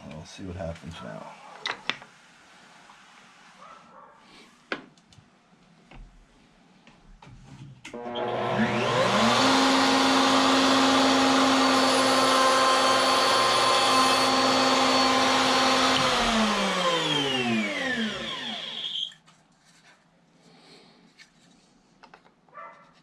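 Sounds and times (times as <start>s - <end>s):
wood router whining: 7.9s - 19.2s.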